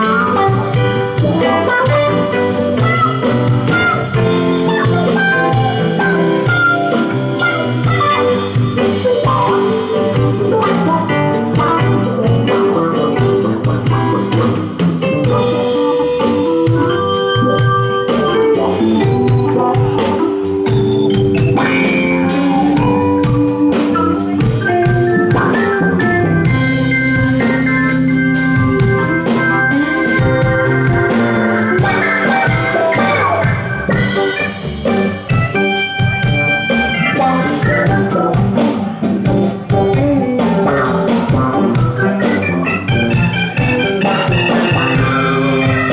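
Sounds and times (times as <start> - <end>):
rock band playing: 0.0 - 45.9
organ sustained chords: 11.2 - 45.9.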